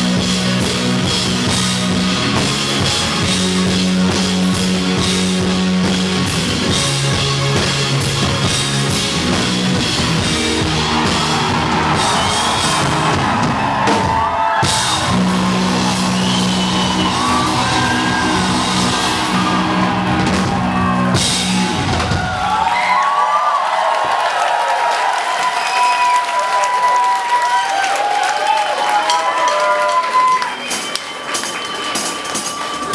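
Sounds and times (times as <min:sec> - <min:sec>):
live rock band playing: 0:00.0 - 0:22.8
crowd cheering and whistling: 0:00.0 - 0:32.9.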